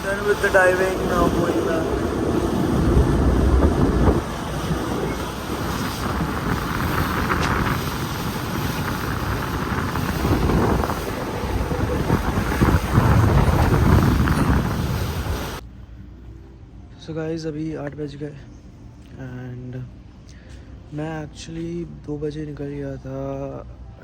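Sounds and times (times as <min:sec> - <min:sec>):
boat rushing through water: 0:00.0 - 0:15.6
wind buffeting microphone: 0:00.0 - 0:15.6.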